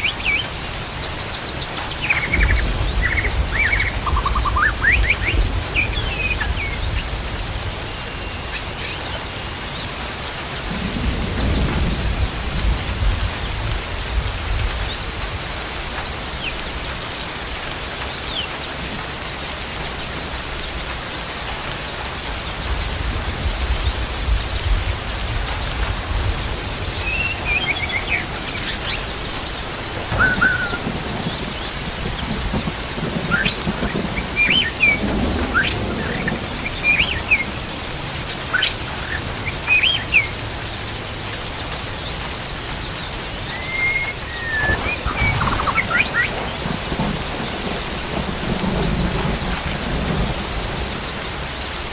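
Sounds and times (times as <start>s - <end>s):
songbirds chirping and whistling: 0.0s - 21.4s, 22.4s - 41.0s, 41.7s - 51.9s
rain hissing: 0.0s - 51.9s
low rumble: 44.2s - 51.4s.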